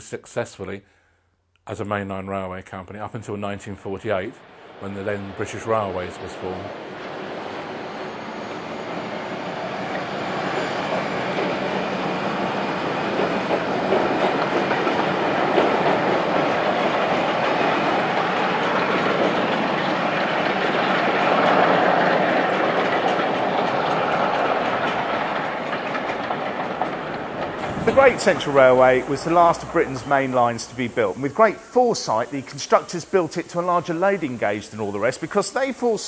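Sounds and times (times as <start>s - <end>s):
train wheels clattering over rail joints: 4.6s - 31.4s.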